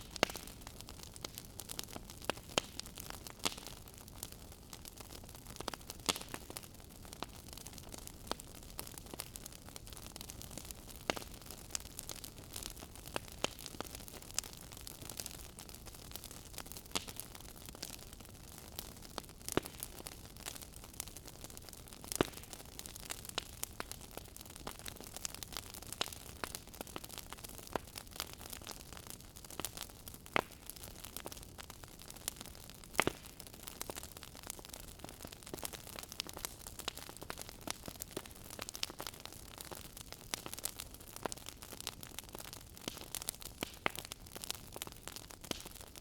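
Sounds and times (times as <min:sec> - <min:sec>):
wood fire crackling: 0:00.0 - 0:46.0.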